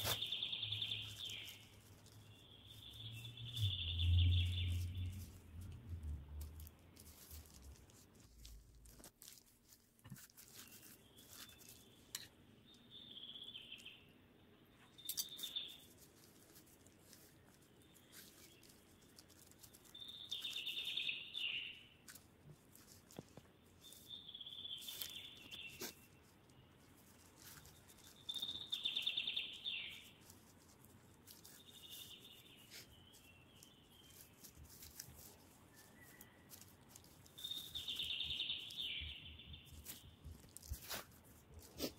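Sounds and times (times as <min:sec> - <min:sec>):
birds chirping: 0:00.0 - 0:06.0, 0:17.1 - 0:22.0, 0:23.2 - 0:30.3, 0:35.1 - 0:40.2.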